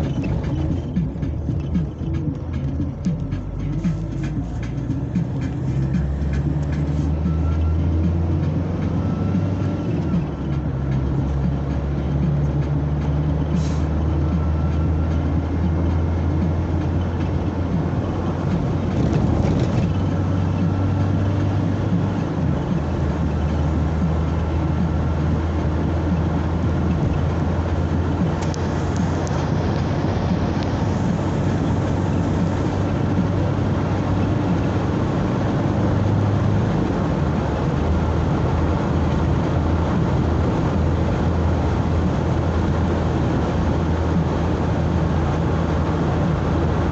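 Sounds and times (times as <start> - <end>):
tyre and road noise: 0.0 - 46.9
vehicle engine hum: 0.0 - 46.9.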